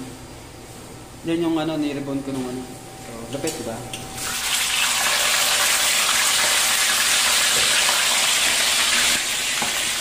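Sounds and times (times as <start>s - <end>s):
fish sizzling in hot oil: 4.3s - 10.0s.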